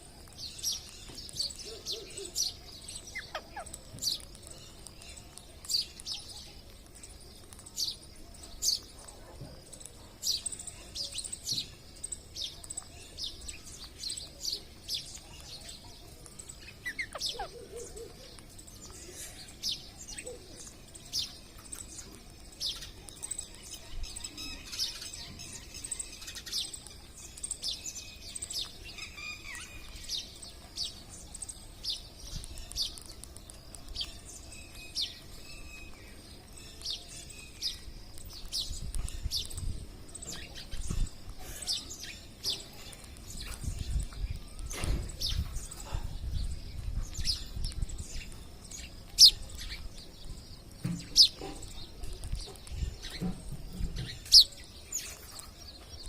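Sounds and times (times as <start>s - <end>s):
parrots calling: 1.6s - 4.3s, 16.8s - 18.4s.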